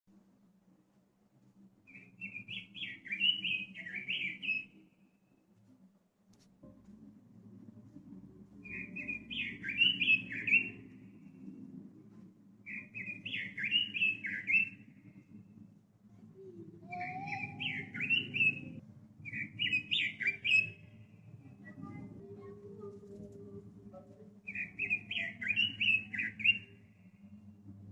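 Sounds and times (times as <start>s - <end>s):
low steady background hum: 0.1s - 27.9s
bird singing warbling phrases: 1.9s - 4.8s, 8.6s - 11.0s, 12.6s - 14.8s, 16.4s - 23.3s, 24.4s - 27.1s.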